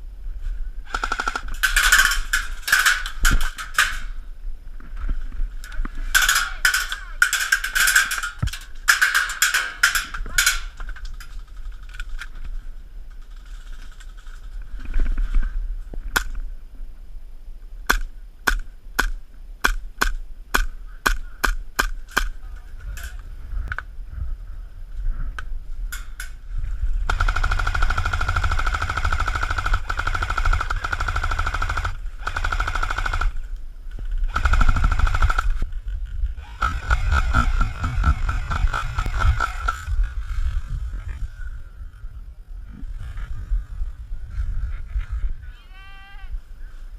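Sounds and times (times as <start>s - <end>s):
airsoft guns firing: 0.9s - 4.2s, 6.1s - 10.9s, 27.1s - 33.4s, 34.3s - 35.6s, 36.6s - 39.9s.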